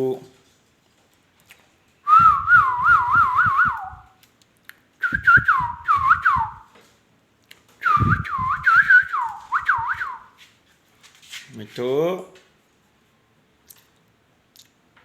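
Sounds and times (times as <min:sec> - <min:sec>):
warbling whistle: 0:02.1 - 0:04.1, 0:05.0 - 0:06.6, 0:07.9 - 0:10.3.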